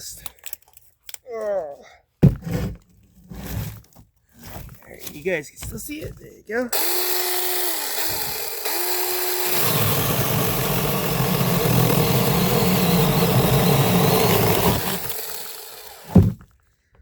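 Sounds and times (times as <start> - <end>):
electric chainsaw whining: 6.8 - 16.3
chainsaw cutting through log: 6.8 - 16.4.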